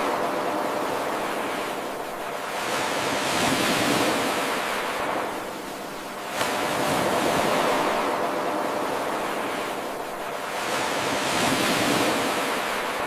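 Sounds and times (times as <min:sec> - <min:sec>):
ocean surf washing in: 0:00.0 - 0:13.0.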